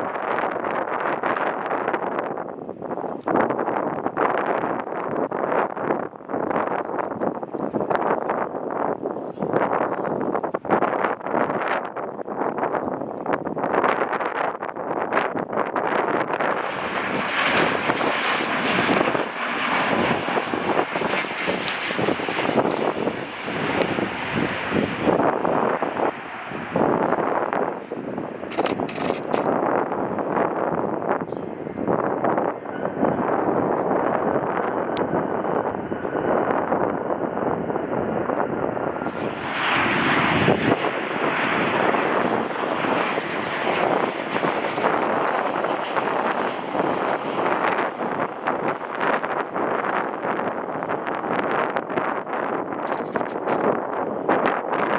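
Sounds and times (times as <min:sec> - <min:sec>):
wind buffeting microphone: 0:00.0 - 0:54.9
jet engines roaring: 0:15.1 - 0:54.9.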